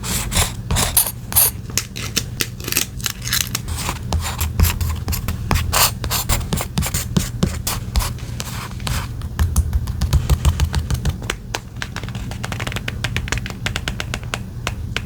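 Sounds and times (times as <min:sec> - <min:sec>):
steady low hum: 0:00.0 - 0:15.0
paper and stationery handled: 0:03.3 - 0:13.4.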